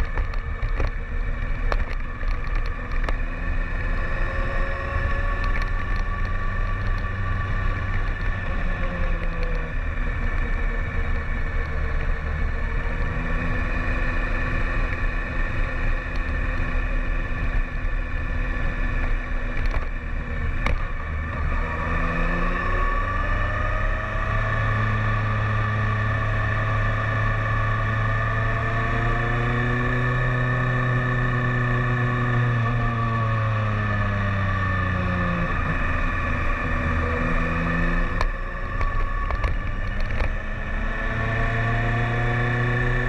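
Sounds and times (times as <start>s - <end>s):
motorcycle engine: 0.0s - 43.0s.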